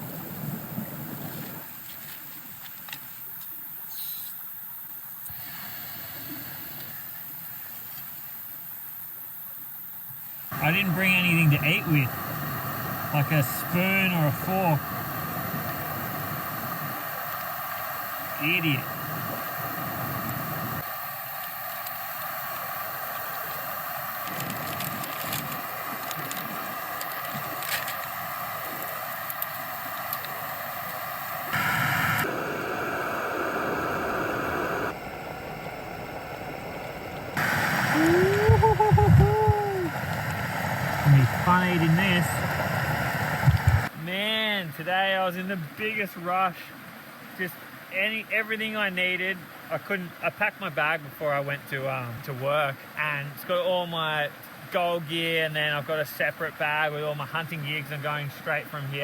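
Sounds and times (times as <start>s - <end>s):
gas burner hissing: 5.2s - 7.9s, 10.2s - 43.9s
faint clicks and rustles: 24.2s - 31.0s.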